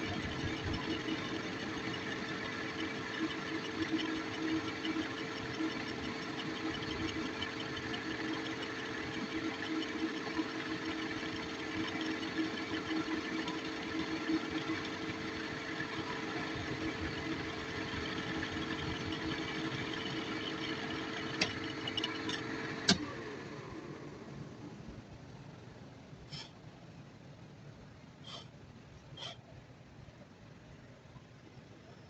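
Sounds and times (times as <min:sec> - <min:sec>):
workshop machine humming: 0:00.0 - 0:25.0.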